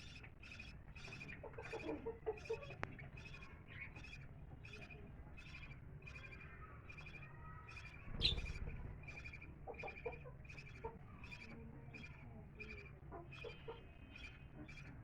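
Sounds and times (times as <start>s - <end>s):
parrots chirping: 0.0s - 15.0s.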